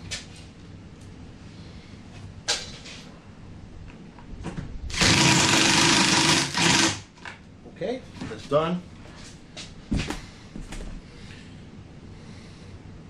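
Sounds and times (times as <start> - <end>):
power tool running: 4.9 - 7.1.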